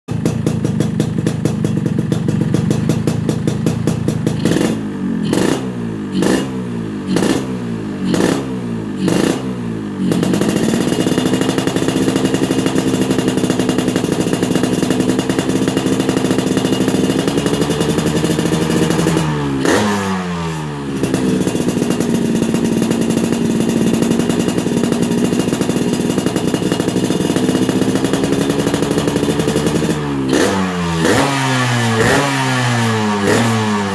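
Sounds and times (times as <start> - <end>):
two-stroke motorcycle engine revving: 0.1 - 33.9.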